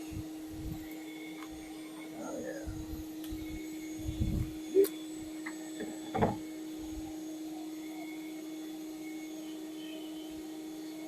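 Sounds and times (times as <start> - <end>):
vacuum motor humming: 0.0 - 11.0
brief thump: 5.8 - 6.4.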